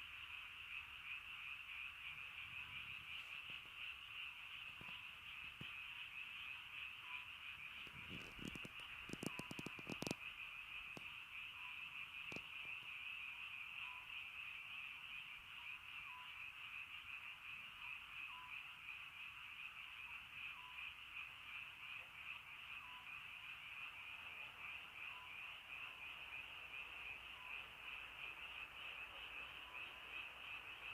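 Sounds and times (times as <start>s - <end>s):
chorus of frogs calling: 0.0s - 30.9s
sharp clicks and taps: 8.2s - 10.2s.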